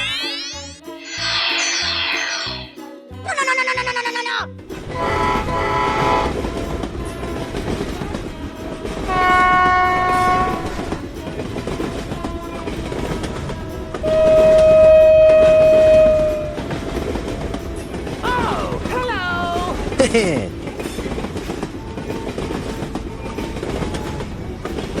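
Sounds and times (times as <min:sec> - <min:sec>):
train rumble and clatter: 0:04.6 - 0:25.0
train horn blasts: 0:04.8 - 0:07.4, 0:08.8 - 0:11.0, 0:14.0 - 0:17.6.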